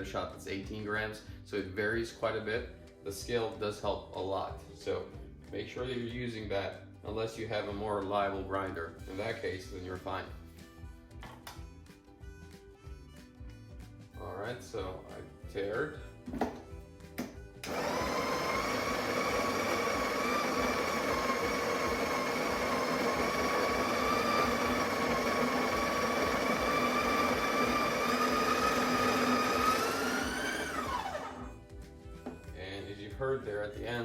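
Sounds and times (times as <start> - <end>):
coffee grinder motor whine: 17.6 - 31.6.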